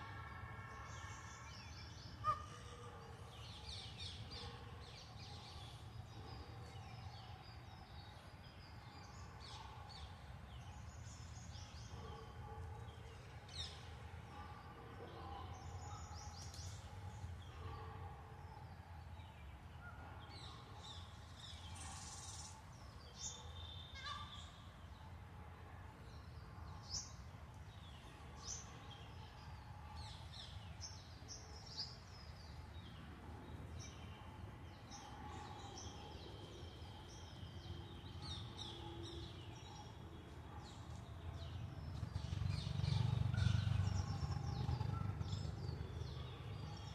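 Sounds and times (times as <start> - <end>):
birds chirping and calling: 0.9 - 8.2.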